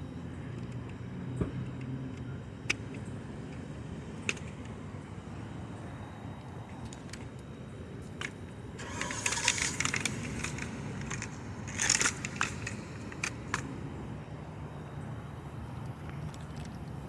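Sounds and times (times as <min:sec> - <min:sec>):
steady low rumble: 0:02.4 - 0:17.0
crunching crackling handling noises: 0:06.7 - 0:14.0.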